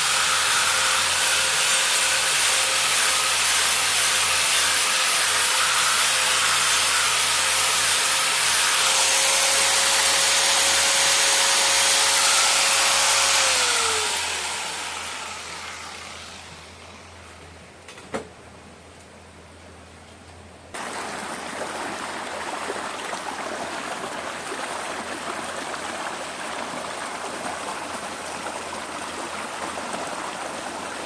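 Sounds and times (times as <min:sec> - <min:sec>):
power tool grinding whine: 0:00.0 - 0:17.2.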